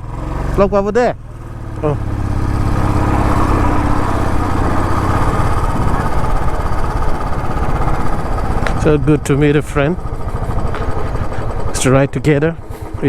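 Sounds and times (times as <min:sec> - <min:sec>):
motorcycle engine running: 0:00.0 - 0:13.0
dense rushing noise: 0:02.0 - 0:11.7.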